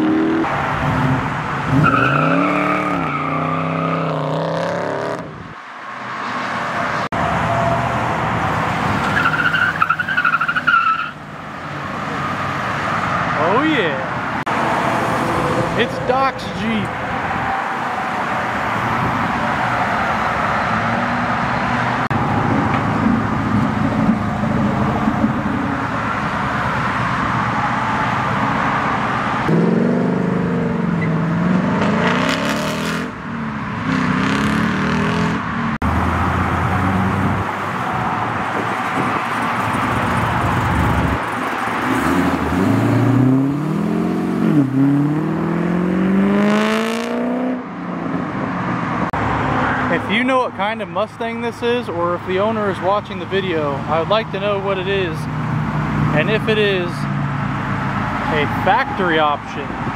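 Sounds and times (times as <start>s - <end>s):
car engines revving hard: 0.0s - 50.0s, 53.1s - 59.9s
car accelerating away: 39.3s - 47.7s.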